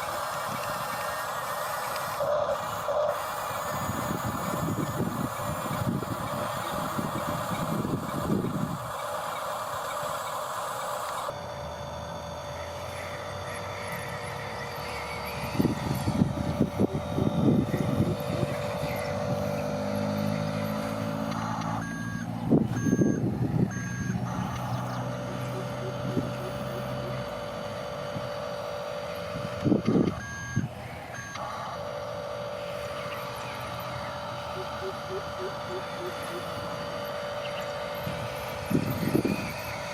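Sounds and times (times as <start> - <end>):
toy electric motors whirring: 0.0 - 39.9
short electronic beeps: 17.7 - 27.3, 30.0 - 31.7.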